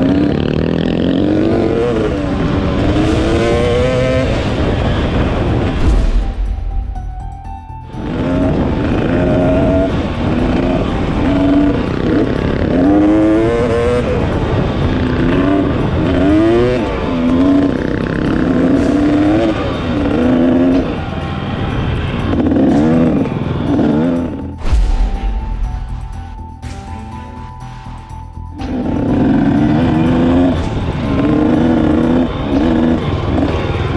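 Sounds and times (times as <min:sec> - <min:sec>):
motorcycle engine revving: 0:00.0 - 0:06.6, 0:07.9 - 0:28.0, 0:28.6 - 0:33.9
wind rush: 0:02.1 - 0:12.7, 0:24.6 - 0:27.9.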